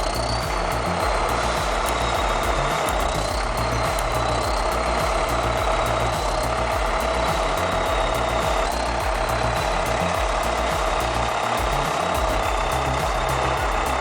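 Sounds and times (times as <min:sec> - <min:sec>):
held whine: 0:00.0 - 0:14.0.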